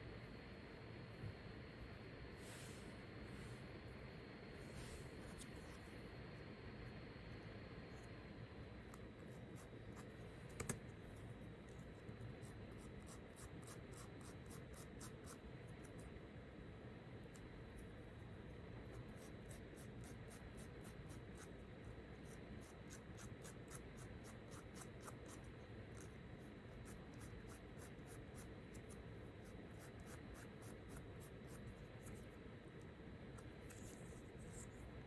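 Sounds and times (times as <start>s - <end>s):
room hum with high whine: 0.0s - 35.0s.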